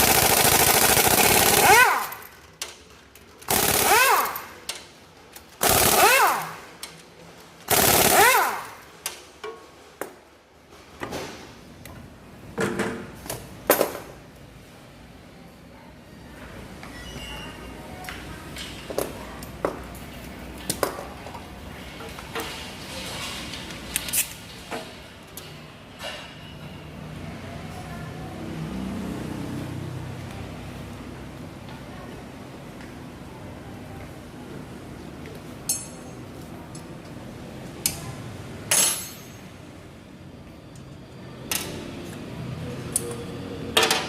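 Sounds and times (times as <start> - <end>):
sharp metallic clinks: 35.7 - 36.2.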